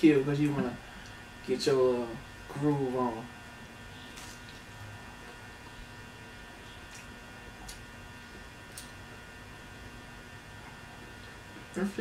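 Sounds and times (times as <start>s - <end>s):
steady electrical hum: 0.0s - 12.0s
quiet chewing: 6.5s - 9.2s.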